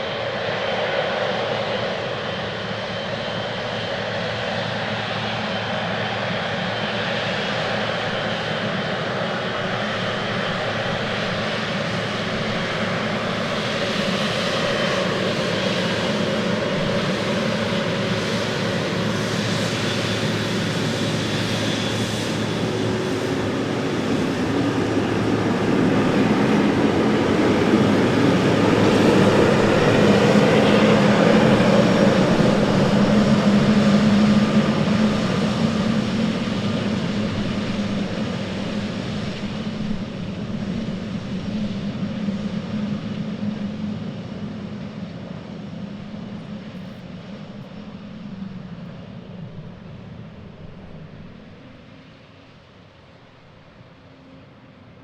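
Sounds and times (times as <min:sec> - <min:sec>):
jet engines running: 0:00.0 - 0:55.0.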